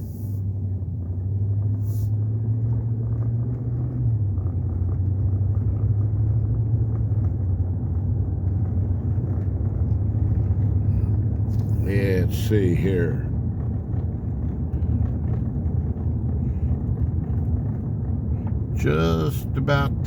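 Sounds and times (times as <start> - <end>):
road rumble: 0.0 - 20.0
vehicle engine drone: 0.0 - 20.0.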